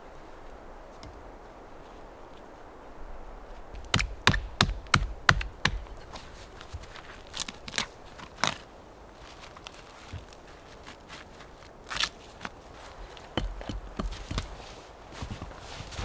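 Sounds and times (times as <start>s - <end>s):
low steady hiss: 0.0s - 16.0s
sharp knocks: 3.9s - 6.1s, 13.3s - 14.5s.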